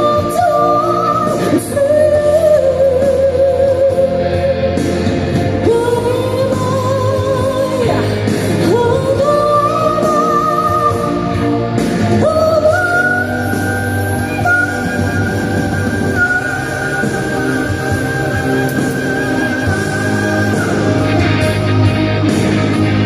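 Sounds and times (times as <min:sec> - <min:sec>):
pop band accompaniment: 0:00.0 - 0:23.0
wavering sustained melody: 0:12.3 - 0:23.0.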